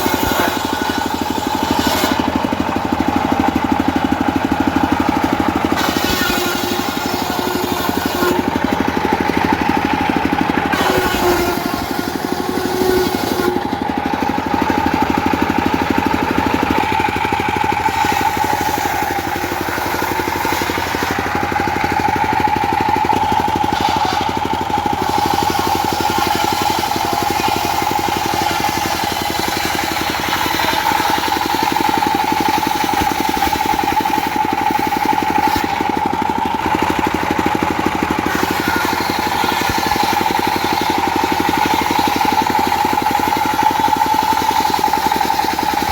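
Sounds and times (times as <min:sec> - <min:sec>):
circular saw high tone: 0:00.0 - 0:02.4, 0:05.2 - 0:15.3, 0:16.5 - 0:35.8, 0:38.2 - 0:45.9
diesel engine chugging: 0:00.0 - 0:45.9.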